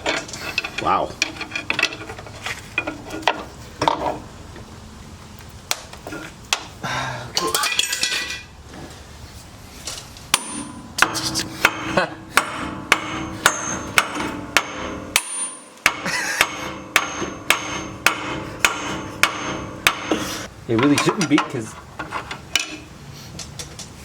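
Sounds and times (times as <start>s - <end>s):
hammer striking metal: 10.3s - 21.6s.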